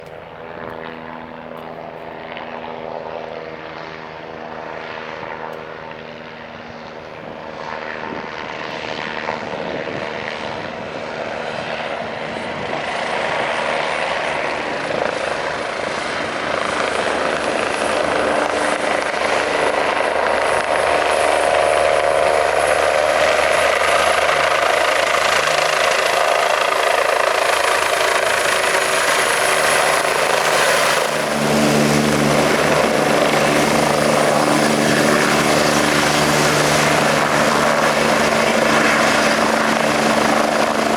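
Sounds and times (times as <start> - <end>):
helicopter rotor and turbine whine: 0.0 - 40.9.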